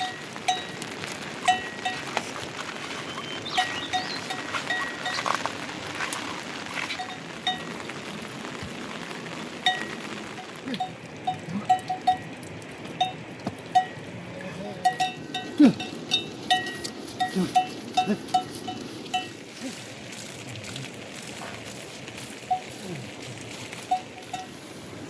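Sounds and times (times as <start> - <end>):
livestock bell clanking: 0.0 - 2.2, 3.0 - 5.4, 10.8 - 12.4, 13.0 - 14.1, 14.8 - 19.4, 22.5 - 22.8, 23.9 - 24.6
rain hissing: 0.0 - 25.0.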